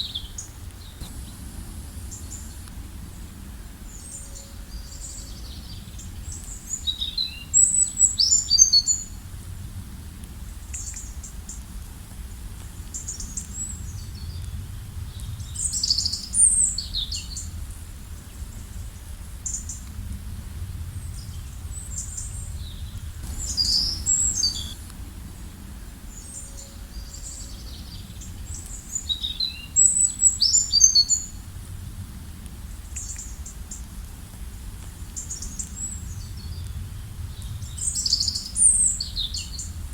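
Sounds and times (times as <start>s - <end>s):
low rumble of background noise: 0.0s - 39.9s
songbirds chirping and singing: 23.2s - 24.8s.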